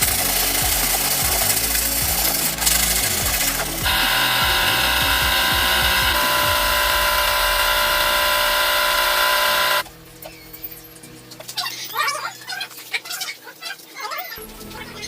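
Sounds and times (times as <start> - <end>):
power tool high whine: 0.0 - 9.8.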